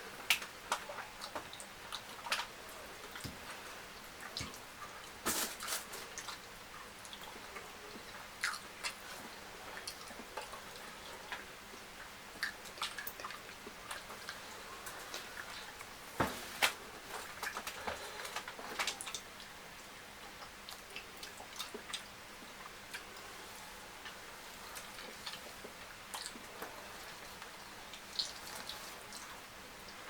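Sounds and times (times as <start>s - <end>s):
person chewing food: 4.2s - 11.4s, 12.0s - 15.9s, 20.4s - 29.4s.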